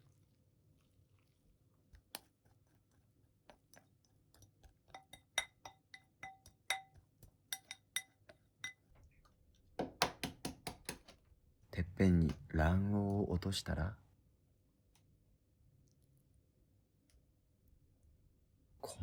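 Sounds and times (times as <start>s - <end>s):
sticky squishy food sound: 0.0s - 5.0s
utensil clinking ceramic bowl: 3.5s - 8.9s.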